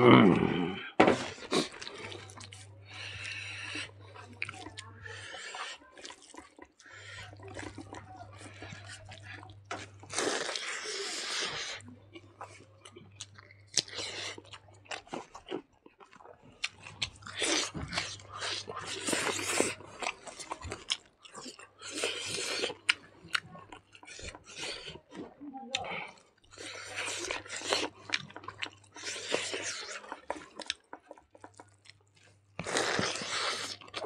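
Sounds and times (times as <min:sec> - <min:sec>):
person chewing food: 0:00.0 - 0:34.0.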